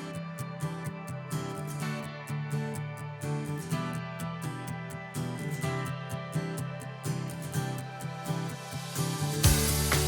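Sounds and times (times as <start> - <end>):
drums and bass: 8.8 - 10.0.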